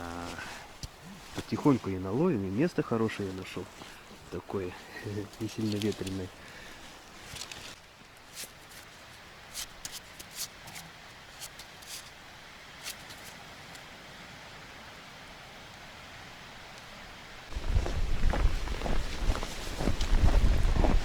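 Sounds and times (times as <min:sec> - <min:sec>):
faint steady hiss: 0:00.0 - 0:21.0
wind buffeting microphone: 0:17.5 - 0:21.0.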